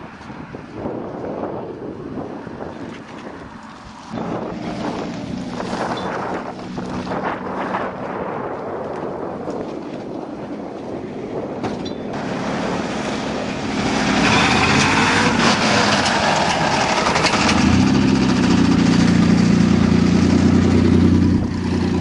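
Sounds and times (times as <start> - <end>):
truck engine revving: 4.2 - 8.5, 12.1 - 22.0.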